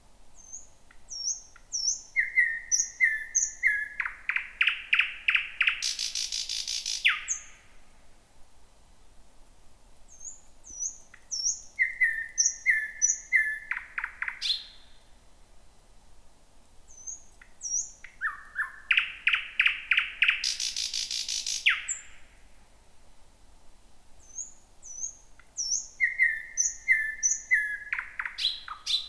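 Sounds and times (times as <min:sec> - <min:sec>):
bird singing: 0:00.4 - 0:07.6, 0:10.1 - 0:15.0, 0:16.9 - 0:22.2, 0:24.2 - 0:29.0.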